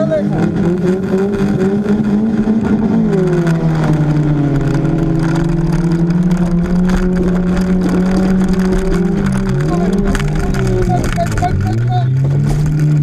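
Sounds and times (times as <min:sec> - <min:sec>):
car engine at high revs: 0:00.0 - 0:13.0.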